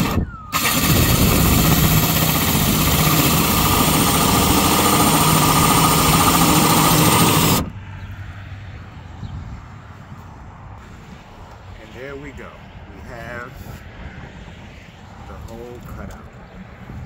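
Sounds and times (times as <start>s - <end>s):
power drill cutting with hole saw: 0.0s - 7.7s.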